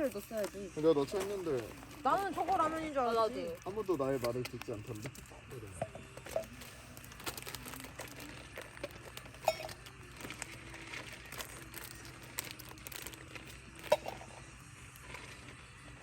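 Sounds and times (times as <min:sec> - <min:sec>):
packaging crinkling and rustling: 0:00.0 - 0:02.8, 0:06.2 - 0:14.1.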